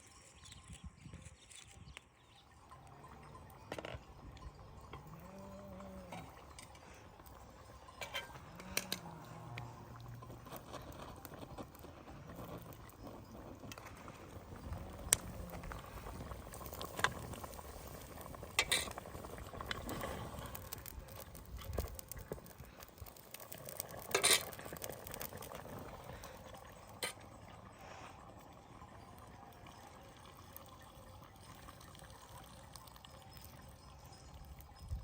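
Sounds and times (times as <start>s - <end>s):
pot bubbling: 0.0s - 35.0s
utensil scraping and knocking pot: 3.2s - 27.2s.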